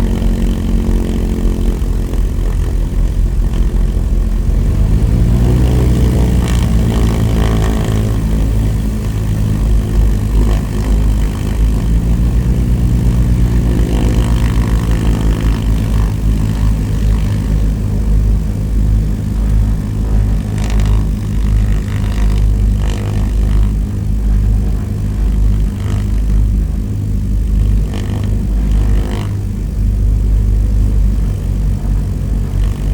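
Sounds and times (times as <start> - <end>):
propeller aircraft engine: 0.0 - 32.9.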